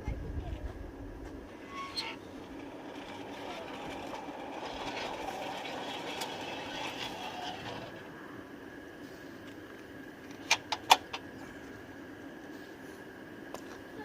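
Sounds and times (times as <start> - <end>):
steam locomotive running: 0.0 - 14.0.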